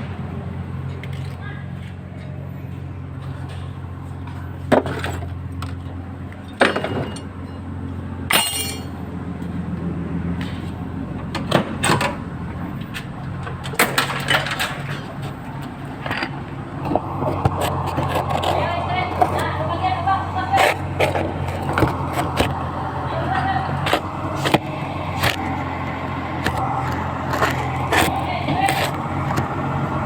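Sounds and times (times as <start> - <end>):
metal tools clanking: 4.8 - 7.7, 8.3 - 9.0, 12.9 - 29.5
steady low hum: 14.5 - 30.0.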